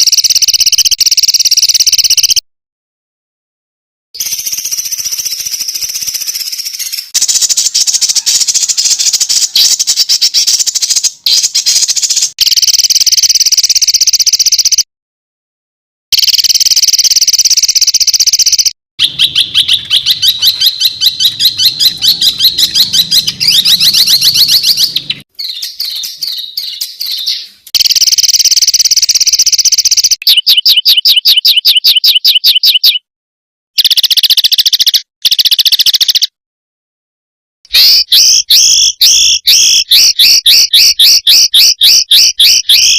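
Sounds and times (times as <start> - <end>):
songbird trills and chattering: 4.2 - 12.4, 16.9 - 33.0, 33.8 - 36.3, 37.7 - 42.9.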